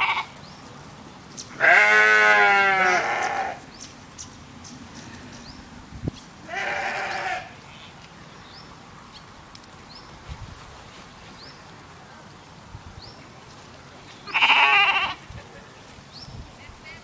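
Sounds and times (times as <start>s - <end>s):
goat bleating: 0.0s - 0.3s, 1.6s - 3.6s, 6.5s - 7.6s, 14.2s - 15.2s.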